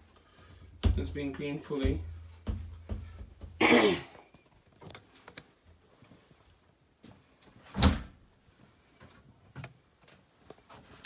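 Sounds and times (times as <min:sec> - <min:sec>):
dull thump: 0:00.8 - 0:03.7.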